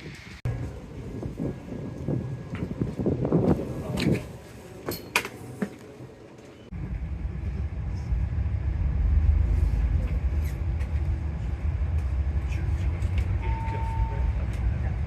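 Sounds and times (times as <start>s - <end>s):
bus engine running: 6.7s - 15.0s.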